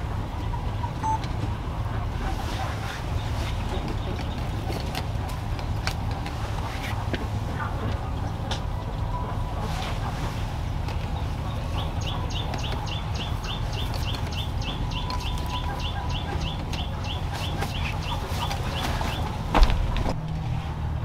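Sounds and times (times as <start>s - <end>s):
bird chirping: 11.0s - 19.4s.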